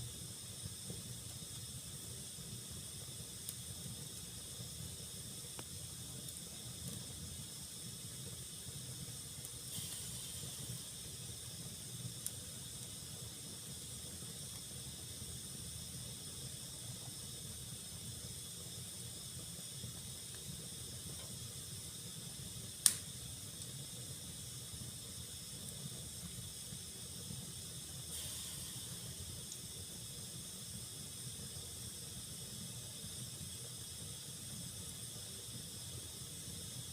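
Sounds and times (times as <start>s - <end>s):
fire crackles: 0.0s - 36.9s
fire hissing and rumbling: 0.0s - 36.9s
sharp pop of fire: 22.8s - 23.2s.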